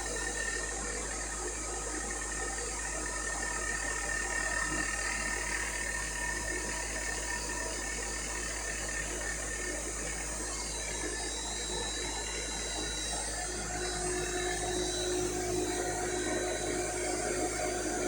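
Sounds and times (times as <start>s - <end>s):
thin high whine: 11.6s - 18.0s.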